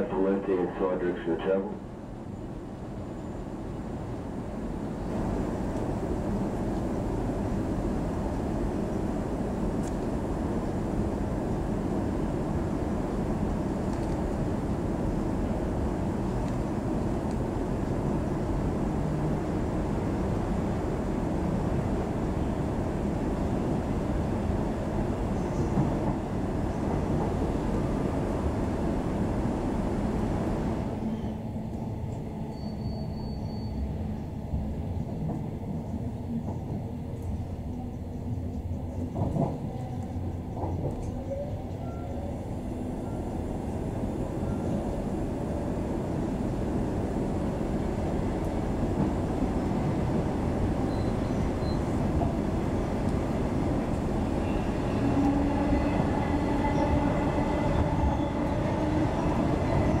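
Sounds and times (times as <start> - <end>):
steady whine: 0.0 - 1.8
train wheels rumbling on track: 0.0 - 60.0.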